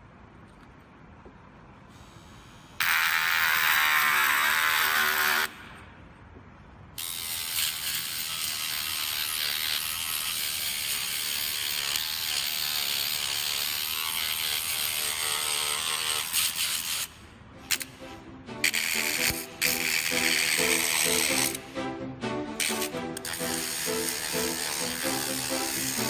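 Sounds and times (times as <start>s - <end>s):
electric motor tool running: 2.8s - 5.5s, 7.0s - 17.0s, 18.6s - 21.6s, 22.6s - 26.0s.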